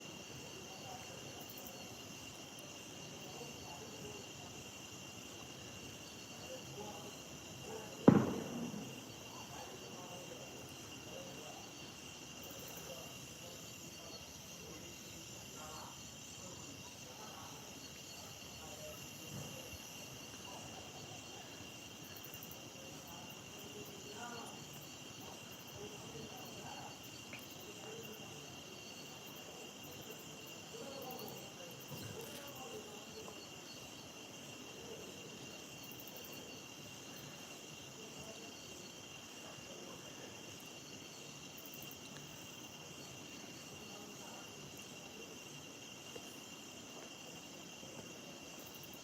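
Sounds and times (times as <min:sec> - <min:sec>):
insect chorus: 0:00.0 - 0:49.0
sharp thump: 0:08.1 - 0:09.0.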